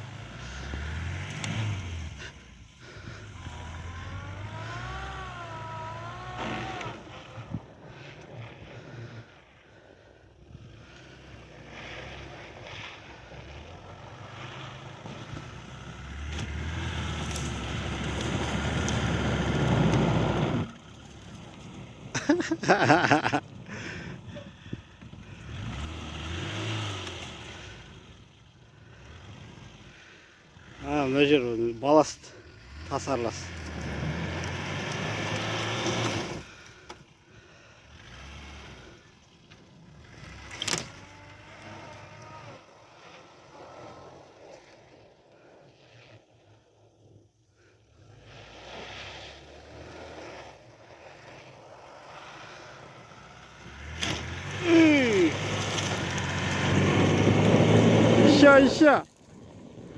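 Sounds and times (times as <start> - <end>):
car engine under load: 0.0 - 45.0, 47.8 - 59.9
tyres driving through snow: 0.0 - 59.9.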